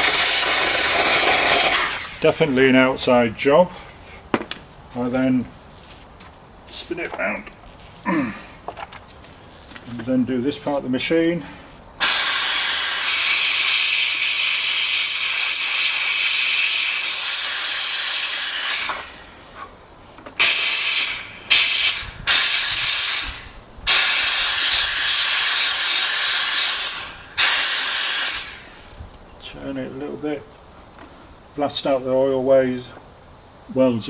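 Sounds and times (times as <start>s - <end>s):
steam cleaner jet hissing: 0.0s - 2.8s, 12.0s - 19.7s, 20.4s - 29.0s.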